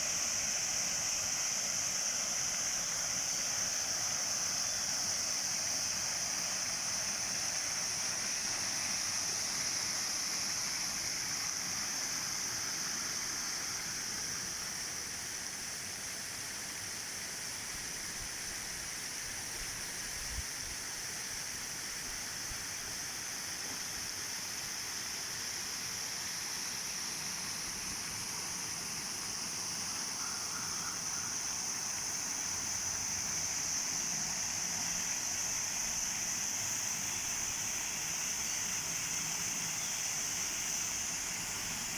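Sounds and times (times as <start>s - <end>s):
waterfall pouring into pond: 0.0s - 14.4s, 32.2s - 41.9s.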